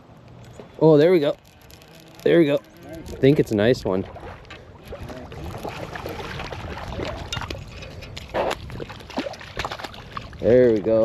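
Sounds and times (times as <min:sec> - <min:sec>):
water splashing and sloshing: 0:01.4 - 0:11.0.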